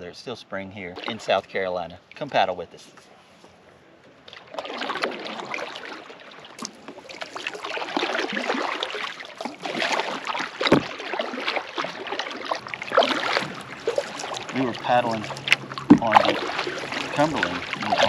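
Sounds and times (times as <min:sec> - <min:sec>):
paddle splashing in lake water: 0:00.9 - 0:02.9, 0:03.6 - 0:18.0
low thump: 0:10.7 - 0:11.0, 0:15.8 - 0:16.3.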